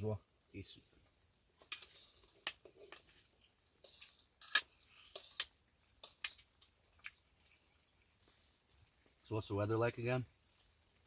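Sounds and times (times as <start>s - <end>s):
cutlery clinking on a plate: 1.7s - 3.0s, 3.8s - 6.4s.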